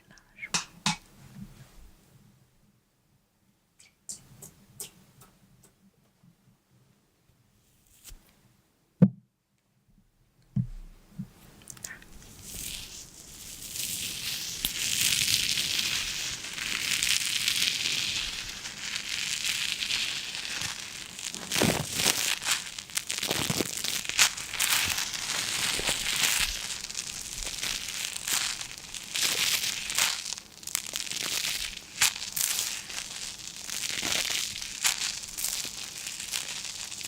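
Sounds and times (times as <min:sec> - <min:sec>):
material crinkling and crackling: 0:11.2 - 0:37.0.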